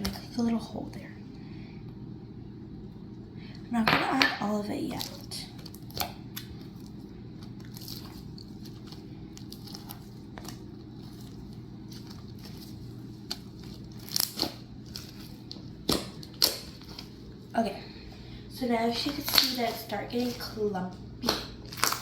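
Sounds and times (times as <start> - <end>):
slime crackling and squishing: 4.7 - 22.0.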